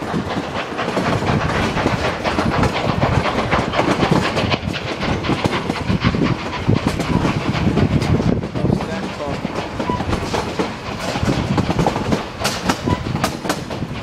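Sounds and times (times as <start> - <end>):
train wheels rumbling on track: 0.0 - 14.0
knocks from rails: 9.4 - 14.0.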